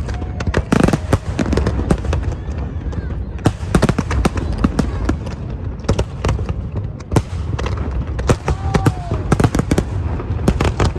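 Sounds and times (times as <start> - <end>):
fireworks bangs and pops: 0.0 - 10.9.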